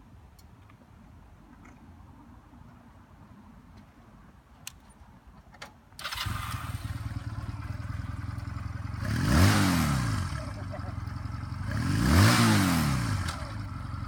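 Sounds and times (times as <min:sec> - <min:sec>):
motorcycle engine starting and idling: 0:06.0 - 0:14.0.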